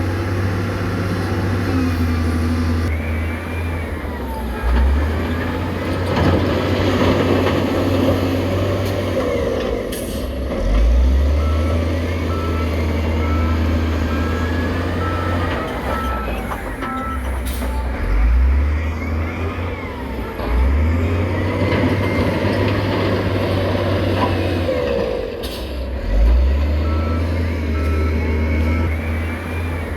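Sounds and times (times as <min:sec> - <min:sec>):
diesel engine droning: 0:00.0 - 0:29.9
reversing alarm beeping: 0:01.7 - 0:05.8, 0:11.2 - 0:23.2, 0:26.8 - 0:29.9.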